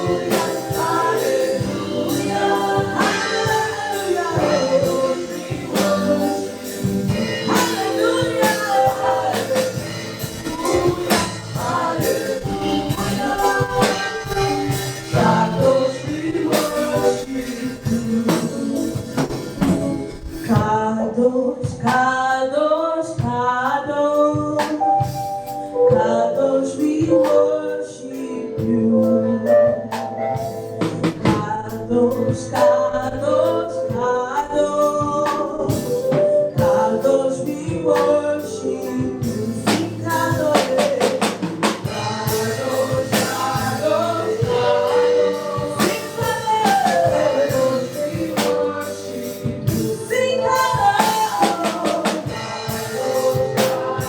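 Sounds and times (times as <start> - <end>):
gospel choir singing: 0.0 - 21.3, 25.6 - 54.0
drum kit: 0.0 - 54.0
live band playing: 0.0 - 54.0.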